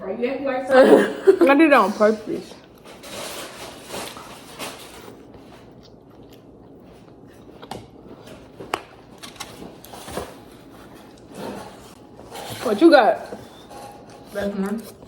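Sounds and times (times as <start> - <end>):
person chewing food: 4.0 - 12.2.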